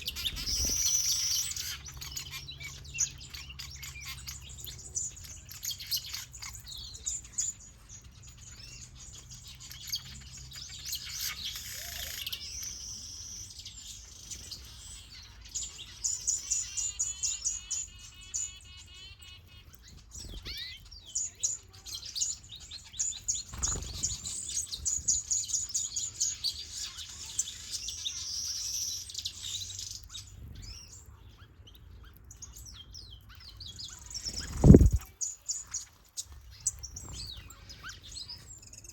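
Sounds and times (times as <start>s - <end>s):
birds chirping and twittering: 0.0s - 38.9s
fast repeated bird warble: 34.2s - 35.1s.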